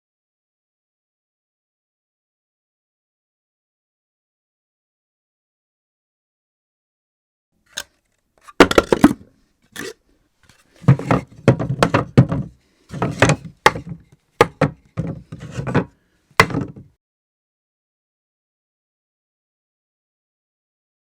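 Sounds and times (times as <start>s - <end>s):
objects clattering on floor: 7.8s - 9.2s, 9.8s - 16.9s.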